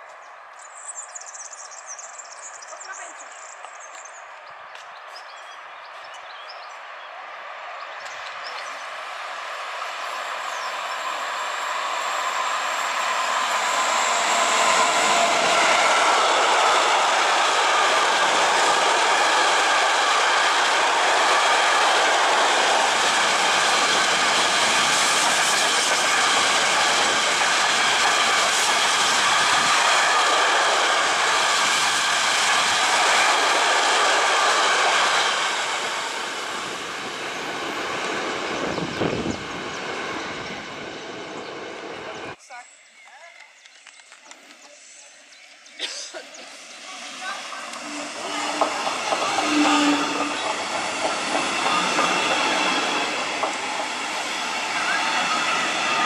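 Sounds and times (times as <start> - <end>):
train wheels rattling on rails: 8.0 - 42.4, 46.2 - 56.0.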